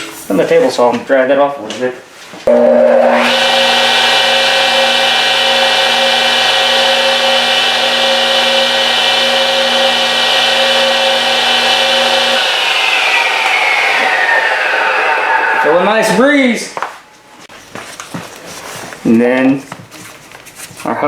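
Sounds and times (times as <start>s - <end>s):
shop vacuum whining: 2.5s - 16.6s.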